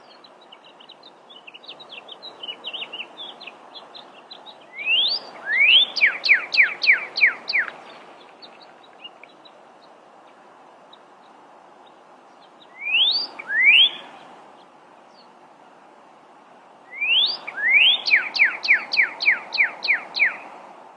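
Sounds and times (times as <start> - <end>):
bird singing whistled phrases: 4.8 - 7.7, 12.8 - 14.1, 16.9 - 20.4.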